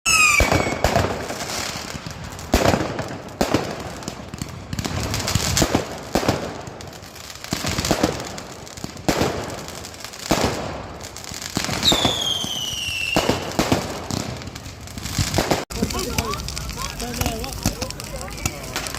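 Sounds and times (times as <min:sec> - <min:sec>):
falling firework whistle: 0:00.1 - 0:01.3, 0:11.7 - 0:13.8
fireworks bangs: 0:00.1 - 0:18.9
fireworks crackling: 0:00.1 - 0:18.9.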